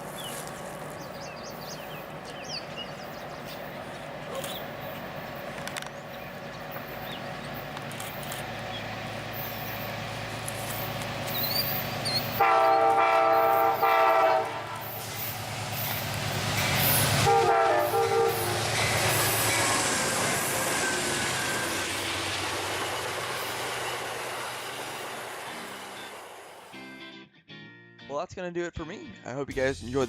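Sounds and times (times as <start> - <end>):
locomotive engine rumble: 0.0 - 26.7
train wheels on rails: 0.0 - 26.8
train horn blasts: 12.3 - 15.0, 17.2 - 18.8.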